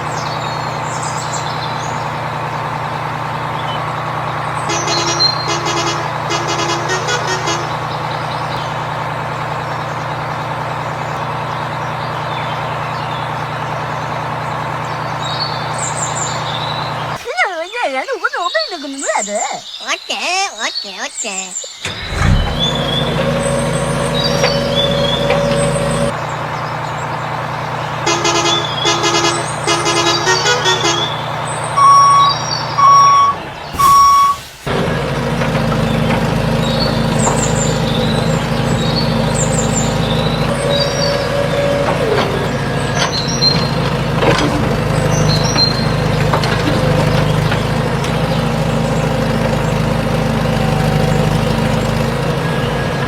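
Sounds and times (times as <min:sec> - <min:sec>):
vehicle engine running: 0:00.0 - 0:17.2, 0:21.8 - 0:53.0
short electronic beeps: 0:31.8 - 0:34.5.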